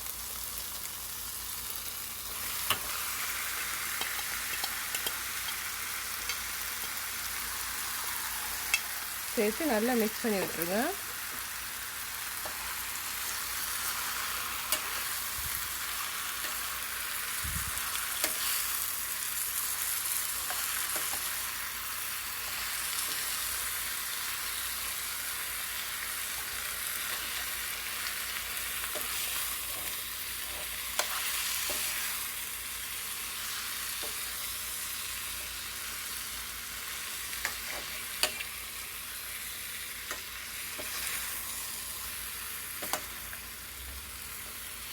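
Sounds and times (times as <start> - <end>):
chicken sizzling in a pan: 0.0 - 44.9
utensil clicking against pan: 4.0 - 5.6.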